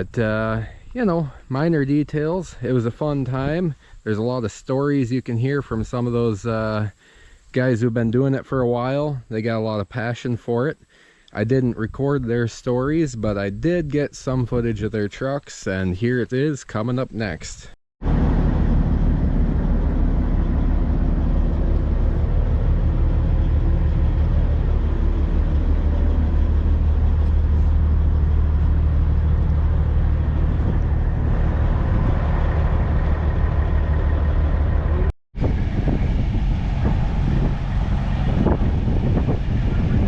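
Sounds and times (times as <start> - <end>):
truck engine rumbling: 18.0 - 40.0.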